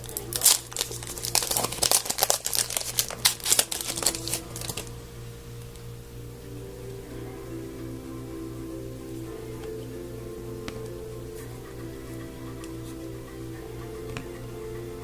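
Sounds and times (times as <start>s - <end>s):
cards clicking and snapping: 0.0s - 4.9s
wrappers crinkling: 0.0s - 5.8s
steady low hum: 0.0s - 15.0s.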